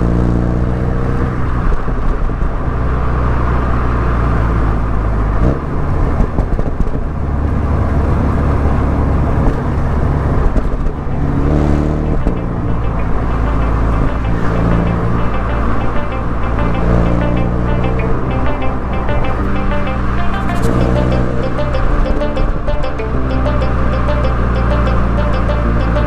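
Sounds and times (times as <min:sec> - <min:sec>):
car engine and exhaust: 0:00.0 - 0:15.4.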